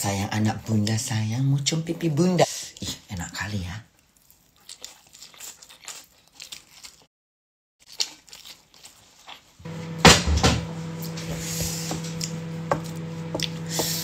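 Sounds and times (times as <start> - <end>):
chewing and mouth sounds: 2.3 - 7.1, 7.8 - 9.6
steady hum: 9.7 - 14.0
loud thump: 10.0 - 10.8.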